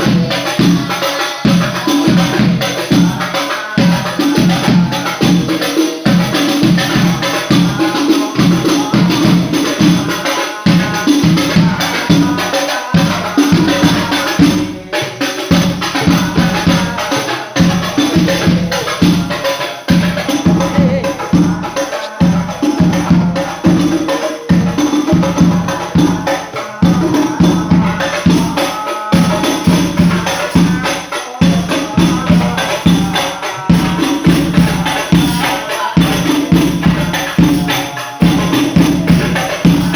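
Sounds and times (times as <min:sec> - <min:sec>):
frame drums beating fast rhythm: 0:00.0 - 0:39.9
people singing: 0:00.0 - 0:39.9.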